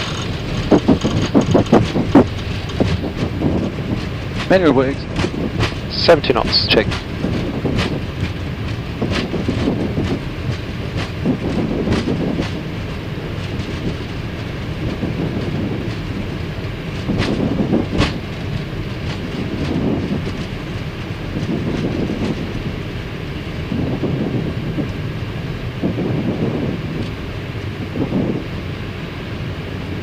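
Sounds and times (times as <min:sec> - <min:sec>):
sharp knocks and rattles: 0:00.0 - 0:22.7
landing gear rumbling on runway: 0:00.0 - 0:30.0.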